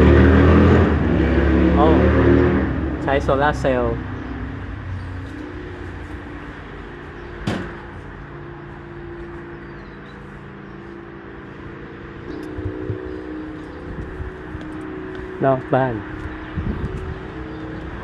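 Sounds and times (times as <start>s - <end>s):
low mechanical hum: 4.5s - 18.0s
held tones: 12.3s - 15.8s.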